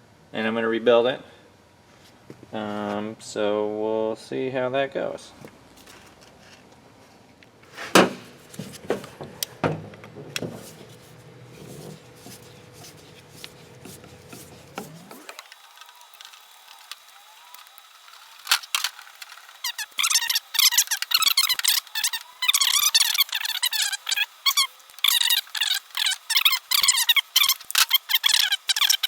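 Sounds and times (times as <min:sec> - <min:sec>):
tools handled on workbench: 0:07.8 - 0:15.1.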